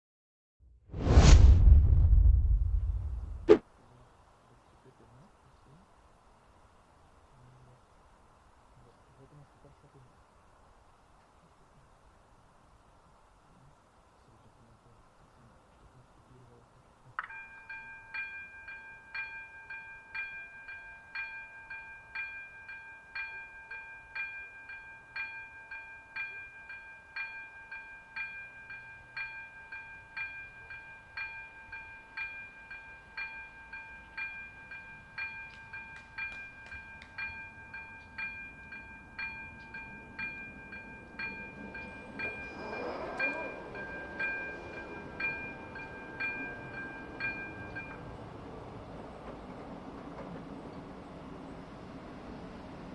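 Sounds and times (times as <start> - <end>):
level crossing bell ringing: 17.4 - 48.1
passing vehicle rush: 41.0 - 50.6.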